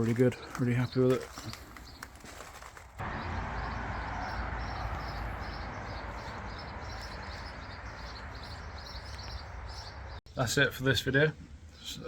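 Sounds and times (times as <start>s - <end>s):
small bird chirping: 3.1s - 10.2s.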